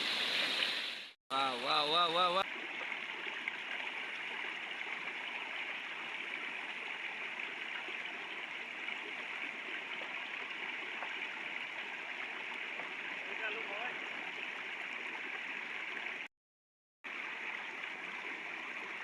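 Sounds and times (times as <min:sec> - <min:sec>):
river flowing over stones: 0:00.0 - 0:16.3, 0:17.1 - 0:19.0.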